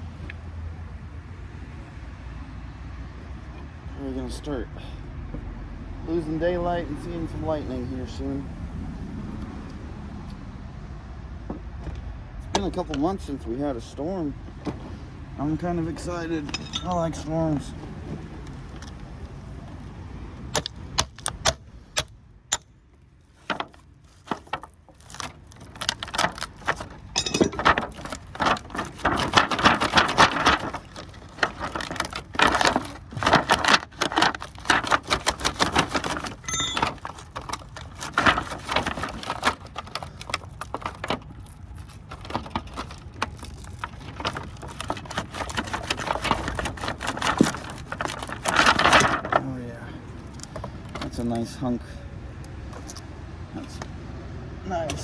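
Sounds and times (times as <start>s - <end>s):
metal windings clinking and rattling: 15.8s - 17.7s, 25.0s - 30.8s, 35.7s - 39.2s.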